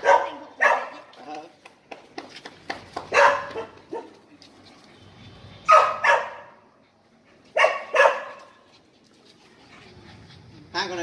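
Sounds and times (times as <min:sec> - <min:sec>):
small dog barking: 0:00.0 - 0:01.0, 0:03.1 - 0:04.1, 0:05.7 - 0:06.5, 0:07.6 - 0:08.4.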